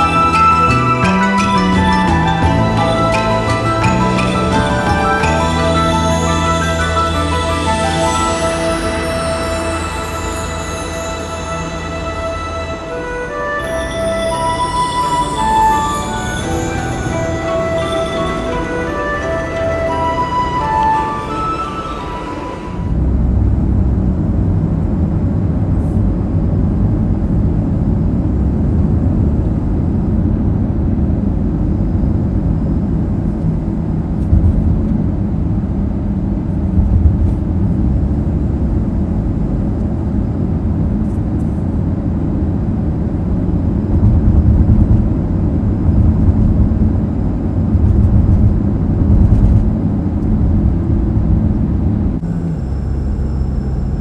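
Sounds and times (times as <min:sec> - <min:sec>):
car engine and road noise: 0:22.8 - 0:54.0.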